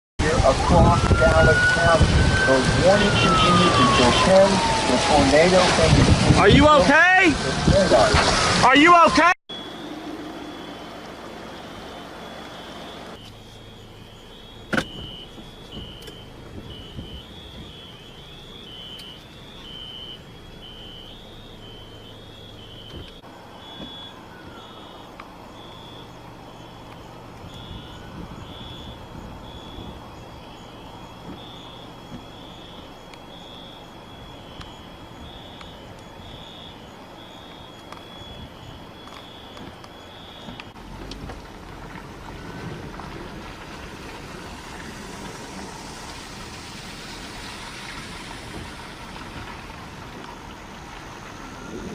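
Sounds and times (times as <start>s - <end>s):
two-pitch electronic alarm beeping: 8.8s - 40.8s.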